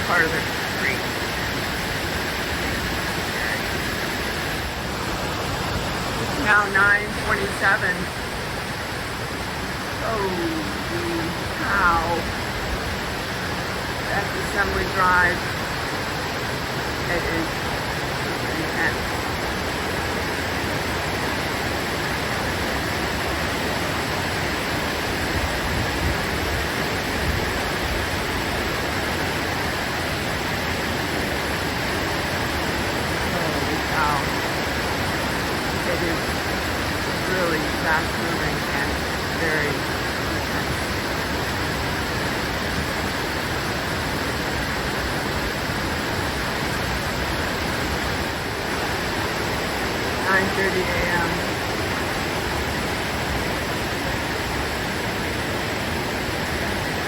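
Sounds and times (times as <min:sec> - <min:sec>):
floodwater rushing: 0:00.0 - 0:57.0.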